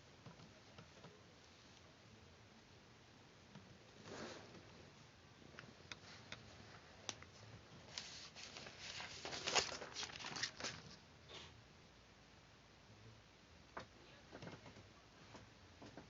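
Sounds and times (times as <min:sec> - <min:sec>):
paper crinkling and rustling: 0:06.1 - 0:11.0.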